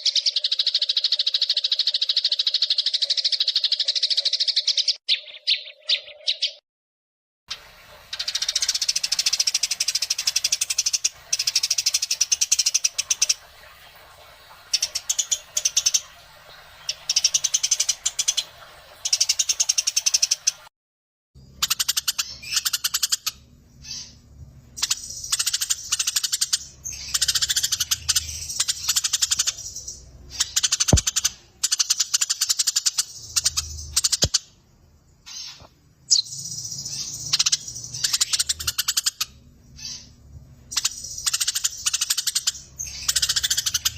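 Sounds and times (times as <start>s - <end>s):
sparrows chattering: 0.0s - 6.6s, 21.4s - 34.6s, 35.2s - 43.9s.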